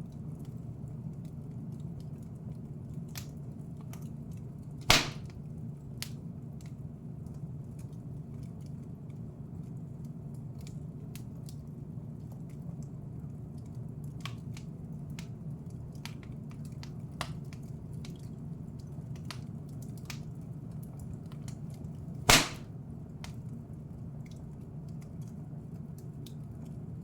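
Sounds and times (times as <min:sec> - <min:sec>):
wood fire crackling: 0:00.0 - 0:27.0
loud sharp pop: 0:04.9 - 0:05.3, 0:22.3 - 0:22.7.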